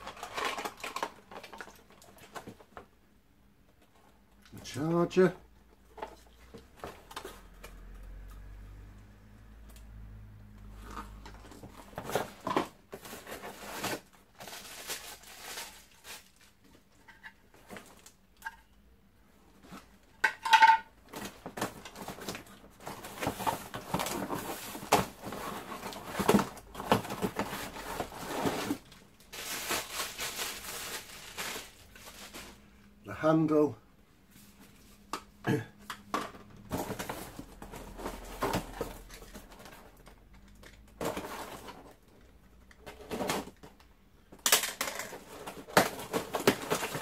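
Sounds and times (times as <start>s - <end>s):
packaging rustling: 0.0s - 2.7s, 11.3s - 18.2s, 21.1s - 32.7s, 44.5s - 47.0s.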